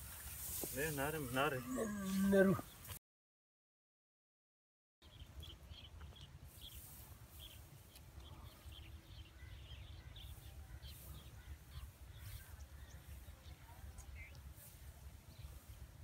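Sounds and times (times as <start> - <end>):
small birds chirping: 5.0 - 16.0.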